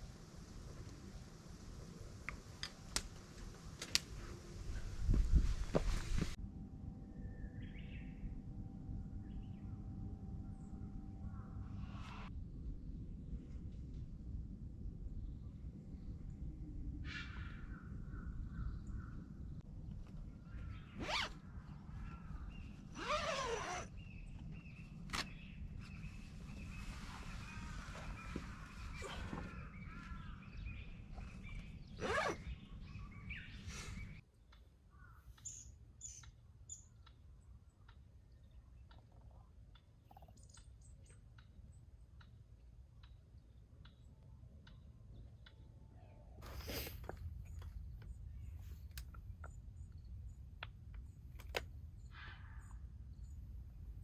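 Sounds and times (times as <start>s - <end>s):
low steady rumble: 3.2s - 17.1s.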